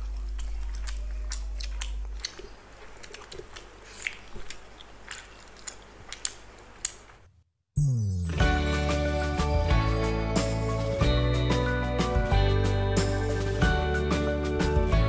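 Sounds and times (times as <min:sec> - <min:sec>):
people chewing and biting: 0:00.0 - 0:07.2
wet mouth clicks and smacks: 0:00.1 - 0:07.2.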